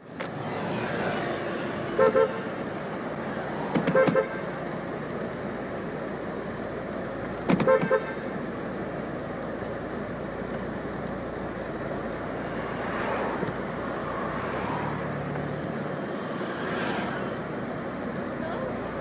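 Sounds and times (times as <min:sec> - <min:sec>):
road traffic noise: 0:00.0 - 0:19.0
vehicles passing: 0:00.0 - 0:19.0.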